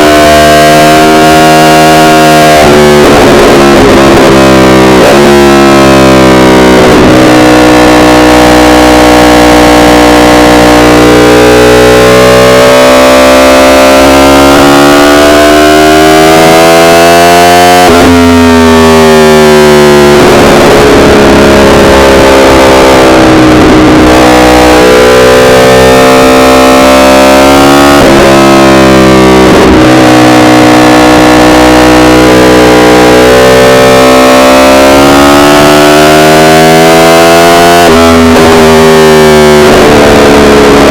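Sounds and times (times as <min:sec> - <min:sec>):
gear changes: 0:00.0 - 0:40.9
sport bike engine revving: 0:00.0 - 0:40.9.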